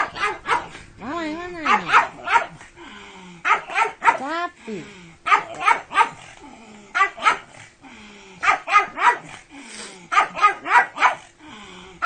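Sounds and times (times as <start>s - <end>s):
dog barking: 0.0s - 0.8s, 1.6s - 2.6s, 3.4s - 4.3s, 5.3s - 6.3s, 7.0s - 7.6s, 8.4s - 9.3s, 10.1s - 11.3s.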